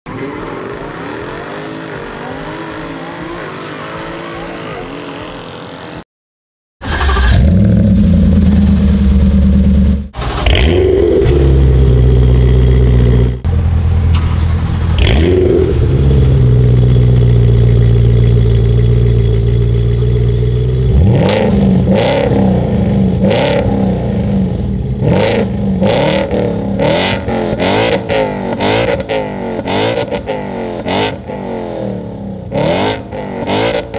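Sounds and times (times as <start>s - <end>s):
sports car exhaust revving: 7.3s - 33.9s.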